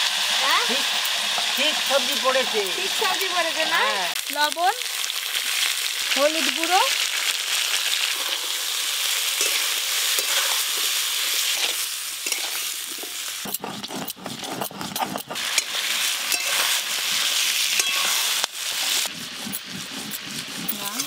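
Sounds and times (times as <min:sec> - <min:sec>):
vegetables sizzling in oil: 0:00.0 - 0:21.0
stone roller grinding on stone slab: 0:12.3 - 0:21.0.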